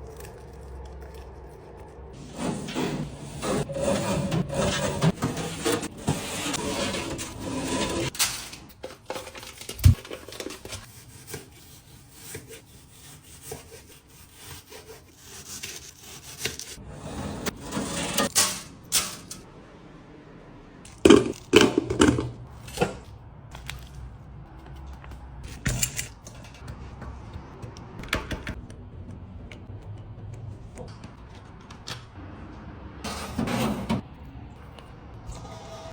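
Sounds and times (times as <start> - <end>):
rubbing and scraping: 0.1 - 8.2
objects knocking and clicking: 20.9 - 23.0.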